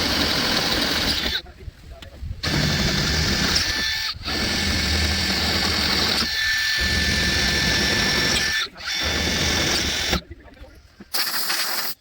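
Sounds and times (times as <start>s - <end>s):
electric drill boring metal: 0.0s - 1.4s, 2.4s - 10.2s.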